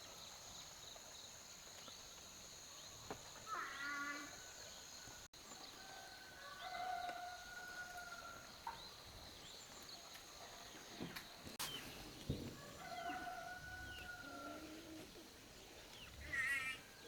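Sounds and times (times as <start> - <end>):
fowl calling: 16.2 - 16.9.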